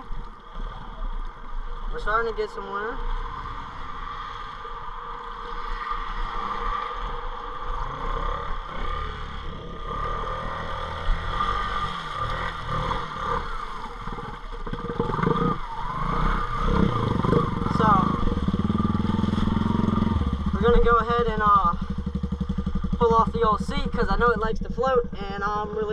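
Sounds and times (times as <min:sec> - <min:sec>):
atv engine running: 0:00.0 - 0:25.9.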